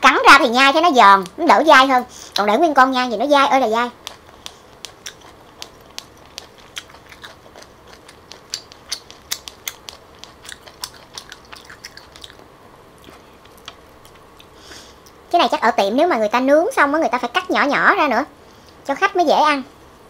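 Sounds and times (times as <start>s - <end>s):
wet chewing clicks: 3.7s - 15.2s.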